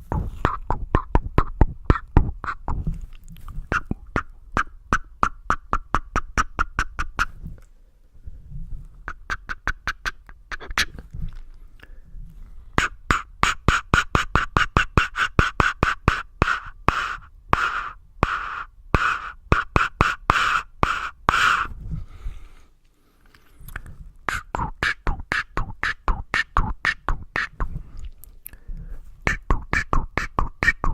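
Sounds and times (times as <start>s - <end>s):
tongue clicks: 0.1s - 7.7s, 9.0s - 11.9s, 23.3s - 30.9s
breathy tsk bursts: 12.7s - 22.7s, 23.6s - 30.9s.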